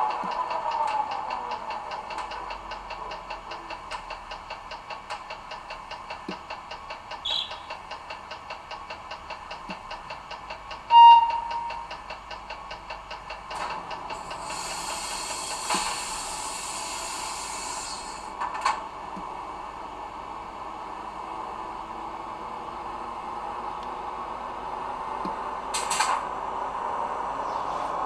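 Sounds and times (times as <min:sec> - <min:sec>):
locomotive running hum: 0:00.0 - 0:28.0
hissing air blow-off: 0:14.2 - 0:18.3.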